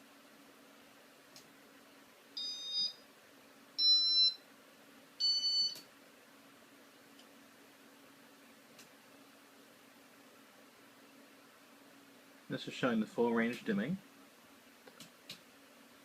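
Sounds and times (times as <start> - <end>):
faint steady hum: 0.0 - 16.0
short electronic beeps: 2.4 - 3.0, 5.2 - 5.8.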